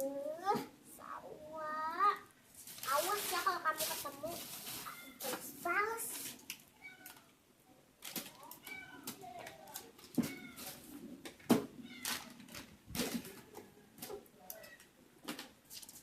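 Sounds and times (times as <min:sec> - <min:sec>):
cat meowing: 0:06.8 - 0:07.3, 0:08.5 - 0:09.2, 0:10.2 - 0:10.8.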